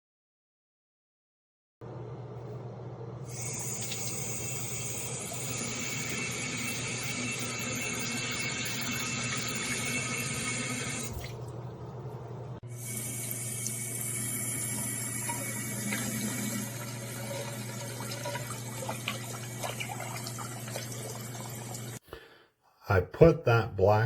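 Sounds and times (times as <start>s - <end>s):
tap water running into sink: 3.4s - 11.4s, 12.8s - 22.0s.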